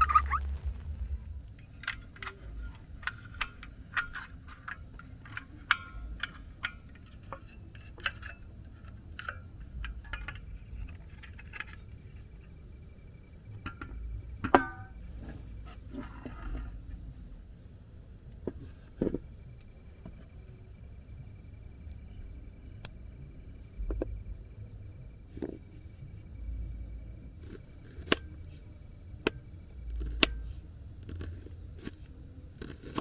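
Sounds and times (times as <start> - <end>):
high-pitched insect drone: 0.0 - 3.1.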